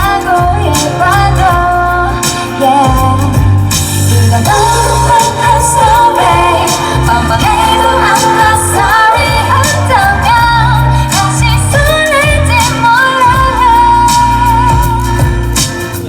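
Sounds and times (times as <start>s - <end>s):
backing track with bass and beat: 0.0s - 16.0s
woman singing pop vocals: 0.0s - 16.0s.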